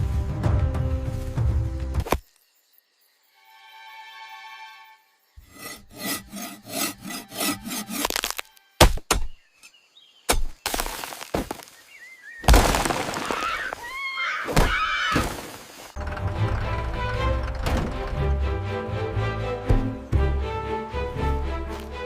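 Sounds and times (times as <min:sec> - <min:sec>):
knocking: 0:16.0 - 0:18.4.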